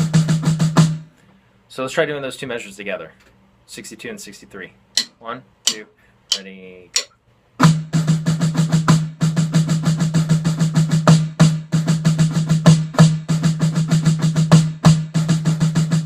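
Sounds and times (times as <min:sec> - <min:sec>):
snare drum roll: 0:07.6 - 0:16.0.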